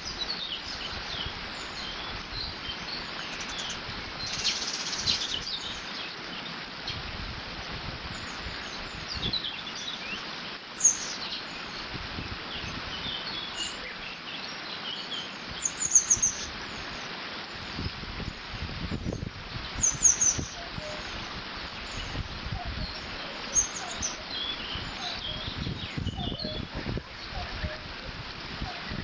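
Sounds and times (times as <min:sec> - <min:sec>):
small birds chirping: 0:00.0 - 0:29.0
wind rumbling on microphone: 0:00.0 - 0:29.0
water rushing through dam: 0:26.5 - 0:29.0.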